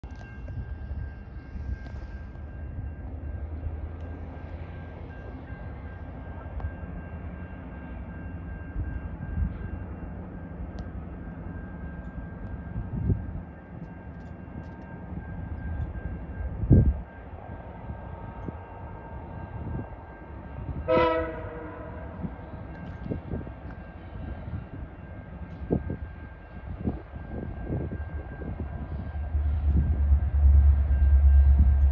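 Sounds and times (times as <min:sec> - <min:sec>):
distant train rumble: 0:00.0 - 0:31.9
locomotive air horn chord: 0:20.8 - 0:22.2.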